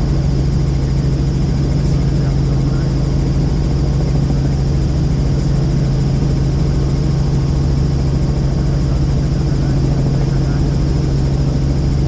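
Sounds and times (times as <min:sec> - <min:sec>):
helicopter cabin drone: 0:00.0 - 0:12.0.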